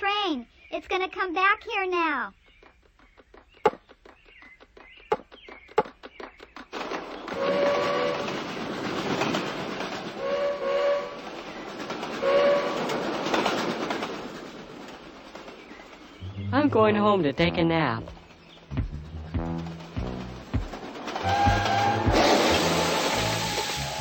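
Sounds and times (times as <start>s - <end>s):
cartoon train clicks: 3.1s - 10.2s, 18.0s - 24.0s
cartoon train chugging: 7.1s - 24.0s
train whistle toots: 7.3s - 8.3s, 10.2s - 11.2s, 12.2s - 12.9s, 21.2s - 24.0s.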